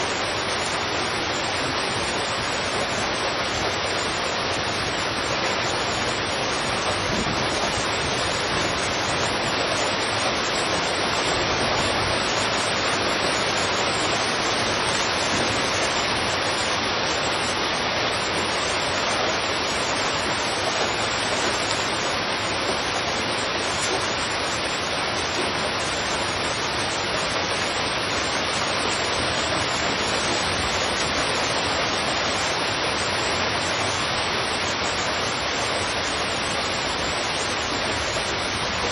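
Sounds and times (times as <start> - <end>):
heavy rain on street: 0.0 - 38.9.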